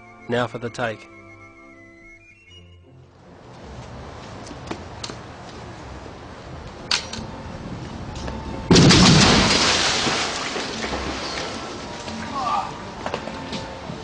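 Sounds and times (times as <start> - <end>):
loud explosion blast: 8.7 - 10.3.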